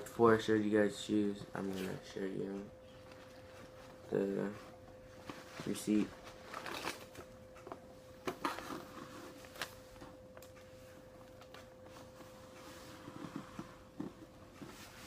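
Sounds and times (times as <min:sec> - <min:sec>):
faint steady hum: 0:00.0 - 0:15.0
paper rustling: 0:05.2 - 0:07.2.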